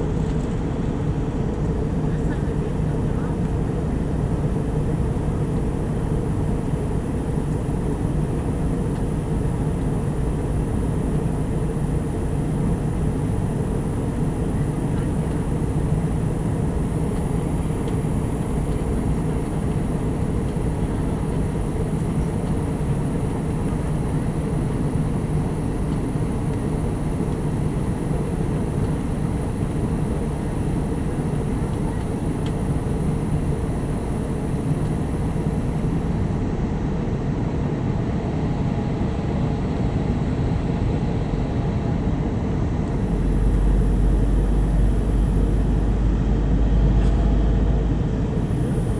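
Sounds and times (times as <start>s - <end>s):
faint constant hum: 0.0s - 8.7s
airliner cabin roar: 24.3s - 48.9s
deep rumble: 37.4s - 48.9s.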